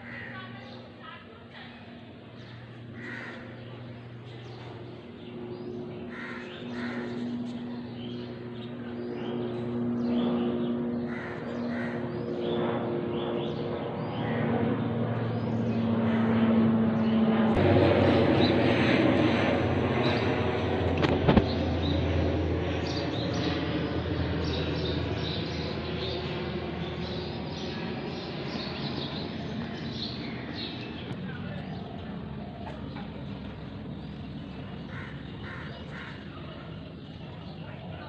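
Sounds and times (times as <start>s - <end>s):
crows cawing: 0.0s - 0.5s, 2.4s - 3.8s, 6.0s - 7.5s, 11.0s - 12.3s, 14.2s - 14.6s, 16.0s - 16.5s, 34.7s - 36.7s
engine droning: 1.6s - 38.0s.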